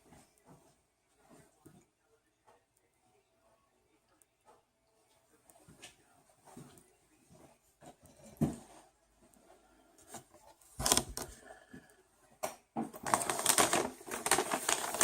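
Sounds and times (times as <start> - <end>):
paper packaging crinkling: 10.7 - 11.4, 13.0 - 15.0.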